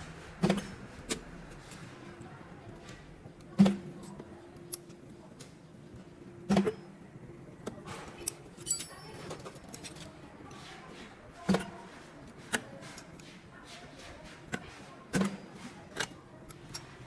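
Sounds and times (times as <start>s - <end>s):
light metallic clicks and clinks: 7.8s - 10.2s.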